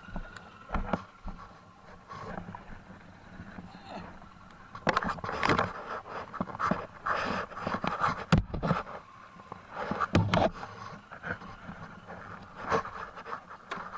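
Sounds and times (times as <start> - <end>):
person breathing hard: 5.2 - 8.0.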